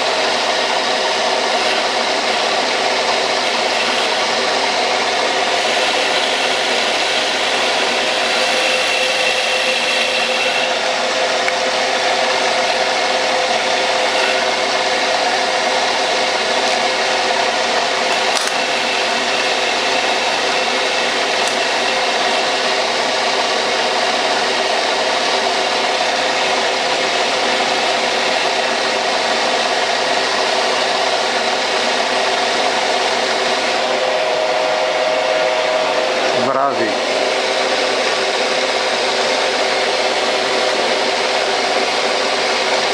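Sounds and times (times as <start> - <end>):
lathe machine hum: 0.0 - 42.9
metal lathe cutting hiss: 0.0 - 42.9.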